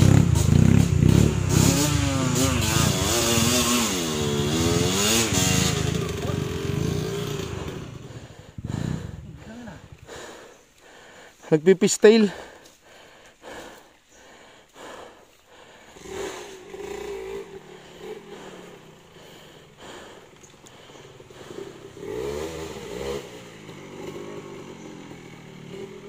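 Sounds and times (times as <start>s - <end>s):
dirt bike engine revving: 0.0s - 10.2s, 15.7s - 26.0s.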